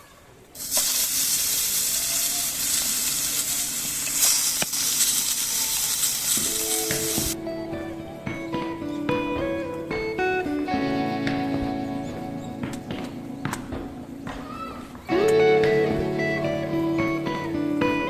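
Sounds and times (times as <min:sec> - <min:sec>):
food sizzling: 0:00.6 - 0:07.4
acoustic guitar music: 0:04.6 - 0:18.0.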